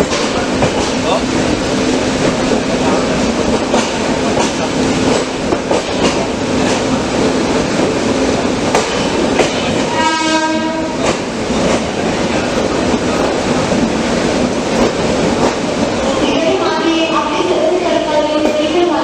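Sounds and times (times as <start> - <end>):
train wheels clicking on rails: 0.0 - 19.0
train horn: 9.8 - 11.1.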